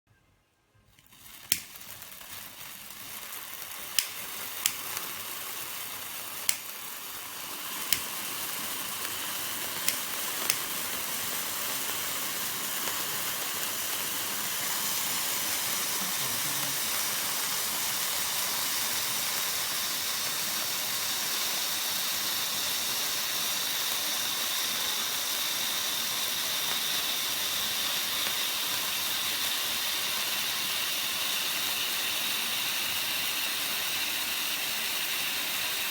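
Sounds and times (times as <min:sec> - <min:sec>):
sharp clicks or pops: 0:00.9 - 0:02.0, 0:03.9 - 0:05.0, 0:06.4 - 0:06.9, 0:09.8 - 0:10.8
fireworks hissing: 0:00.9 - 0:35.9.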